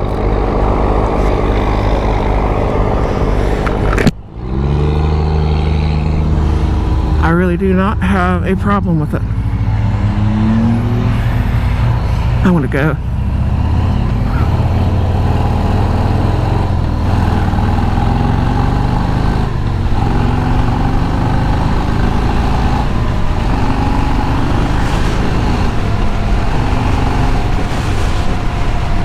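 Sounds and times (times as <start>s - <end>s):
motorcycle engine running: 0.0s - 10.6s
wind rumble on microphone: 24.5s - 29.0s.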